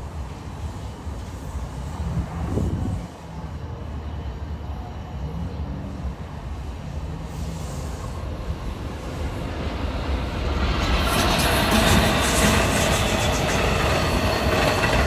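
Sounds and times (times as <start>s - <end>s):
train approaching rumble: 0.0s - 15.0s
wheel-on-rail noise: 5.4s - 15.0s.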